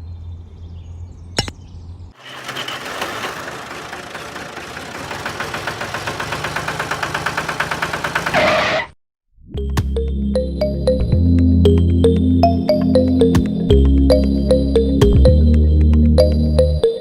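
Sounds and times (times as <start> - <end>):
small engine running: 2.2 - 8.8.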